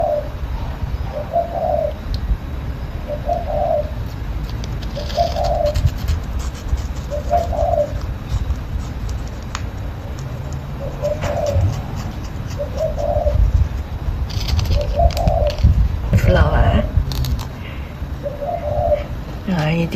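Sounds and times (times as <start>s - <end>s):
bird cooing: 0.0s - 0.4s, 1.0s - 2.0s, 3.1s - 4.0s, 5.0s - 5.8s, 7.1s - 8.0s, 10.8s - 13.5s, 14.7s - 15.6s, 18.2s - 19.2s
low rumble: 10.3s - 19.5s.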